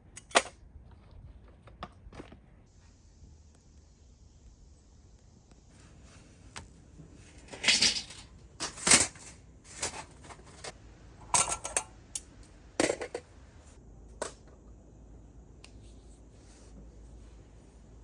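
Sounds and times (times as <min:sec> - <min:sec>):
objects clattering and knocking: 0:07.0 - 0:12.0, 0:12.8 - 0:13.4.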